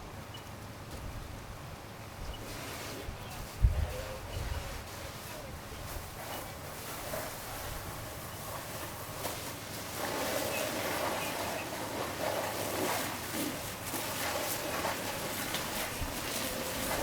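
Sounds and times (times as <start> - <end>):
fire rushing: 2.5 - 17.0
faint indistinct voices: 2.9 - 6.4.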